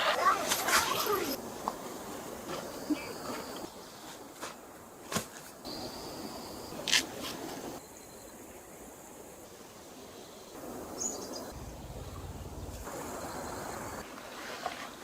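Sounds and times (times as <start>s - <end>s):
forest stream flowing: 8.7s - 15.0s.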